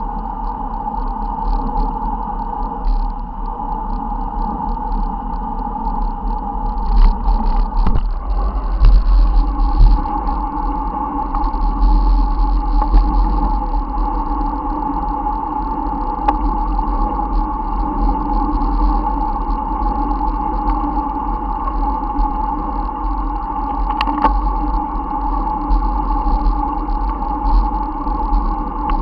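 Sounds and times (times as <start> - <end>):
wind buffeting microphone: 6.4 - 15.1.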